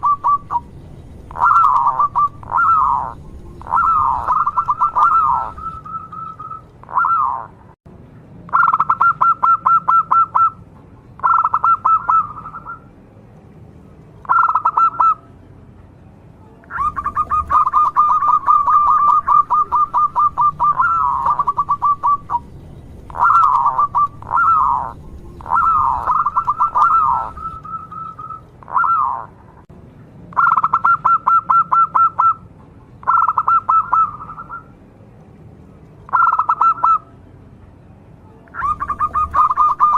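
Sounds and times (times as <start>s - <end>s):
dove cooing: 0.0s - 0.7s, 1.3s - 7.6s, 11.2s - 12.8s, 14.3s - 15.2s, 16.7s - 22.5s, 23.1s - 29.4s, 38.6s - 39.9s.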